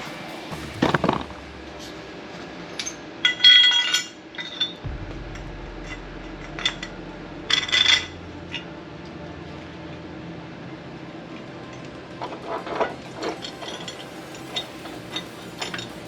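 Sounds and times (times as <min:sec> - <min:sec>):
metal tools clinking and clattering: 0:12.2 - 0:16.0.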